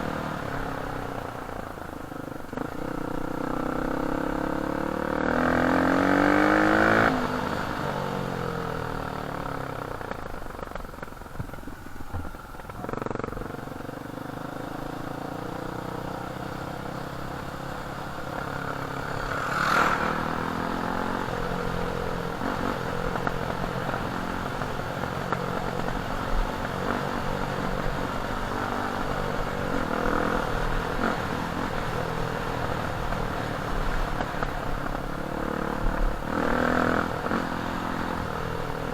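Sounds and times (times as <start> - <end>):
dirt bike engine revving: 2.6 - 7.8, 15.4 - 34.2.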